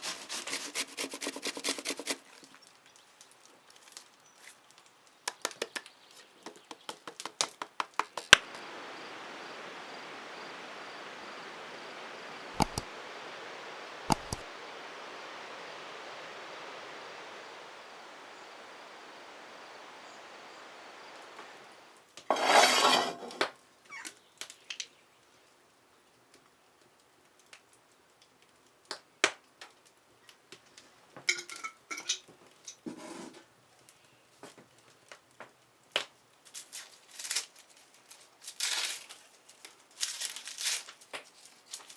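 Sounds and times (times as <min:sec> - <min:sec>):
potato scraping strokes: 0:00.0 - 0:02.4, 0:12.6 - 0:12.8, 0:14.1 - 0:14.4
grating hiss: 0:12.6 - 0:12.9, 0:14.1 - 0:14.4
sharp clicks: 0:12.6 - 0:12.9, 0:14.1 - 0:14.4.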